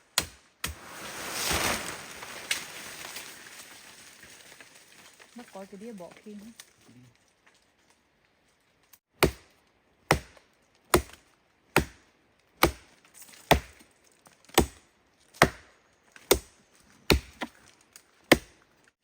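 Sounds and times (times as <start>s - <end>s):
wood chopping blows: 12.6s - 12.9s, 17.1s - 17.6s.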